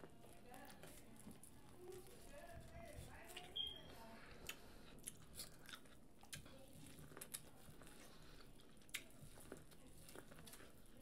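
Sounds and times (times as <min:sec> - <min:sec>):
corn on the cob being chewed: 0:04.3 - 0:11.0.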